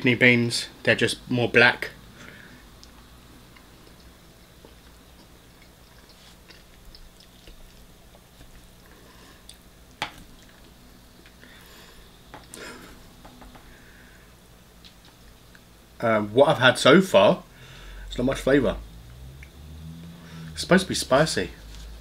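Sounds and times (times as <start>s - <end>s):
chewing with wet mouth sounds: 2.8s - 11.4s.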